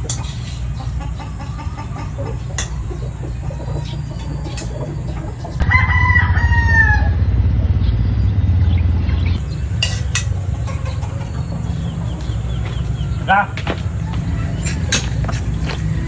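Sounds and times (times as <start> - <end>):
steady low rumble: 5.4 - 16.0
rooster crowing: 5.6 - 7.7.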